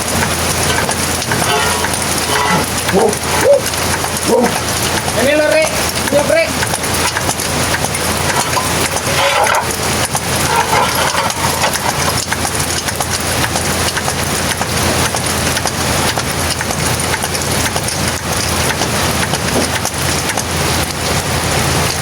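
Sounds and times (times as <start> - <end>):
steady rain falling: 0.0 - 22.0
truck engine idling: 0.0 - 22.0.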